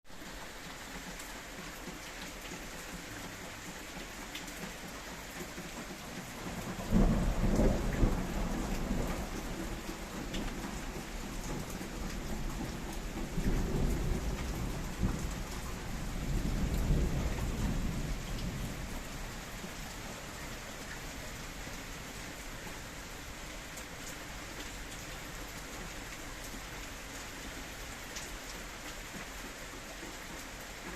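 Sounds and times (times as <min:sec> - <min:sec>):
steady rain: 0:00.0 - 0:30.9
thunder rumbling: 0:06.7 - 0:19.9.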